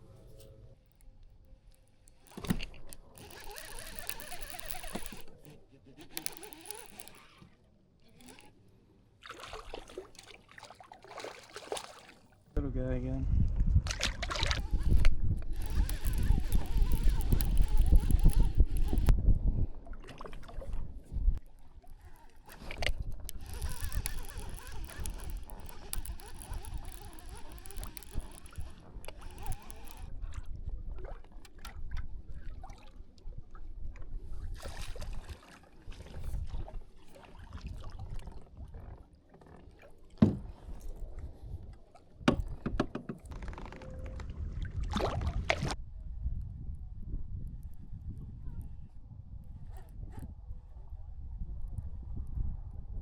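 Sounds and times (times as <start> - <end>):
wind noise: 12.6 - 32.7, 40.3 - 53.0
sharp knocks and clicks: 14.5 - 19.1, 42.3 - 43.8.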